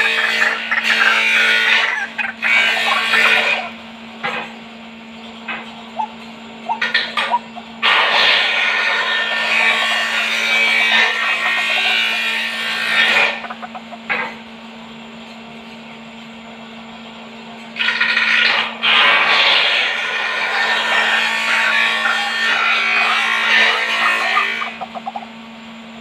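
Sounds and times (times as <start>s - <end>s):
waterhen calling: 0.0s - 3.8s, 5.9s - 7.8s, 11.0s - 14.1s, 23.2s - 25.3s.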